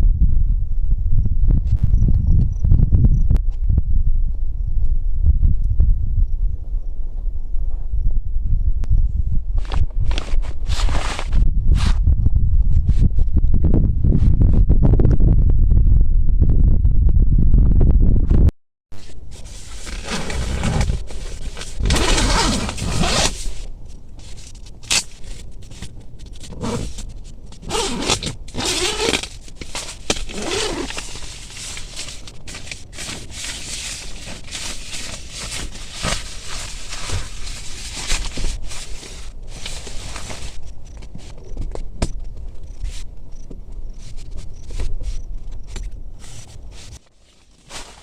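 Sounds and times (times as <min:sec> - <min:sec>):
tent fabric rustling and rasping: 0:09.6 - 0:12.0, 0:19.0 - 0:41.4, 0:44.0 - 0:48.0.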